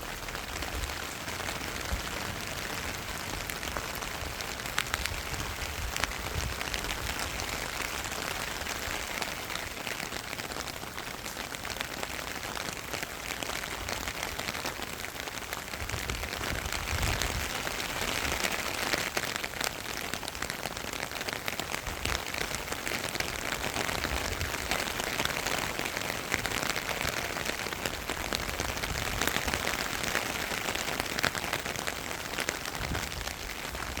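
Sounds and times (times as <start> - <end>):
rain drops pattering: 0.0 - 34.0
wind rumble on microphone: 0.1 - 7.7, 15.8 - 18.4, 23.9 - 24.8, 28.2 - 29.6, 32.6 - 34.0.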